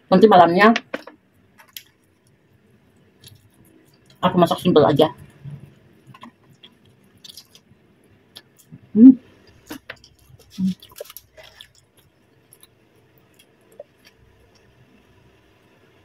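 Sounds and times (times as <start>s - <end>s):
chewing with wet clicks: 1.6s - 2.0s, 6.1s - 7.6s, 9.5s - 14.7s.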